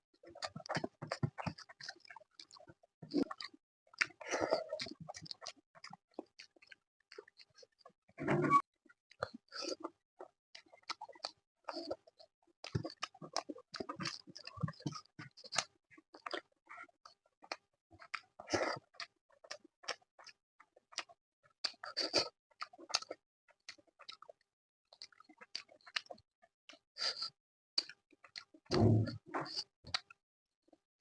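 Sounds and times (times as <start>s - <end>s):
chewing soft food: 0.1s - 8.1s, 8.9s - 30.8s
wet mouth clicks and smacks: 24.9s - 28.5s.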